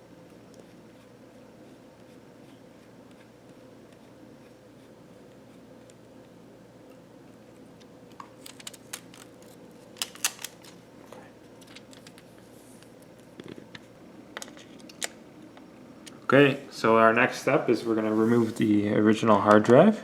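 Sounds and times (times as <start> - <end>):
faint steady hum: 0.0 - 20.0
small parts and tools clicking: 10.0 - 10.8.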